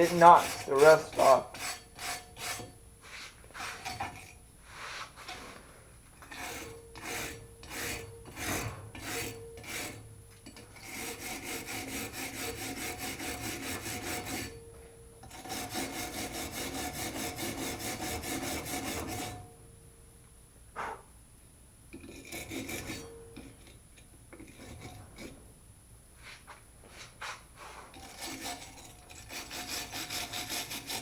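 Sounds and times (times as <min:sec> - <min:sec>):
wire brush scrubbing metal: 0:00.0 - 0:04.1, 0:10.8 - 0:14.6, 0:15.4 - 0:19.4, 0:28.0 - 0:31.0.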